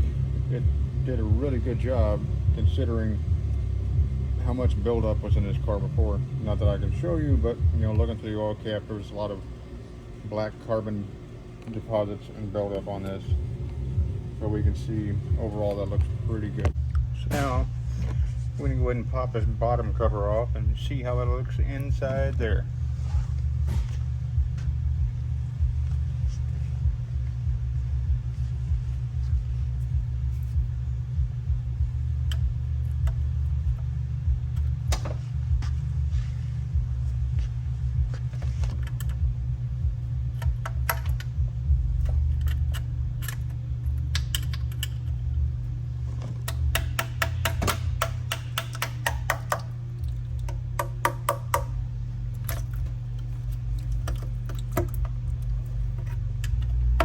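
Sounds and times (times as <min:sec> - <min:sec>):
steady low hum: 0:00.0 - 0:57.0
ratchet wrench clicking: 0:40.2 - 0:41.4, 0:42.0 - 0:45.2, 0:46.4 - 0:51.8
tools tapping on metal: 0:46.4 - 0:49.8, 0:50.4 - 0:51.8.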